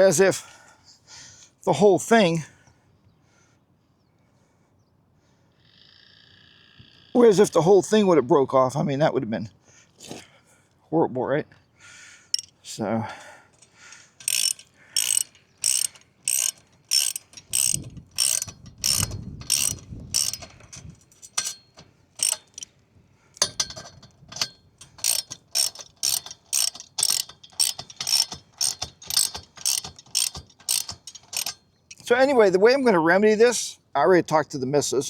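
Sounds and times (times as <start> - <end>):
ratchet wrench clicking: 12.3 - 12.6, 14.2 - 22.7, 23.4 - 32.1.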